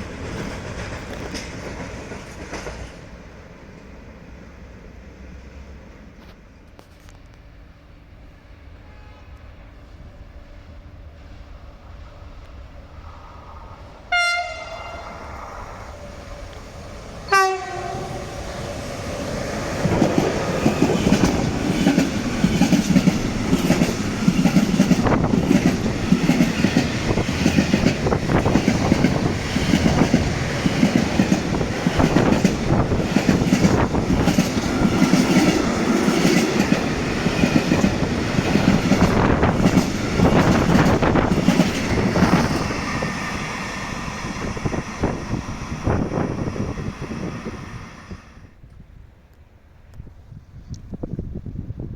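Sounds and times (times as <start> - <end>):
train horn toots: 8.4 - 9.7, 14.1 - 15.4, 17.3 - 18.4.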